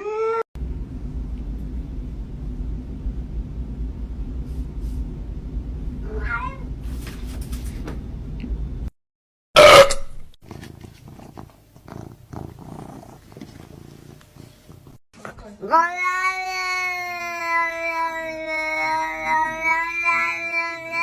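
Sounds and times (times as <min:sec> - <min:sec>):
steady low rumble: 0:00.6 - 0:07.0
cat meowing: 0:06.0 - 0:06.7, 0:15.7 - 0:21.0.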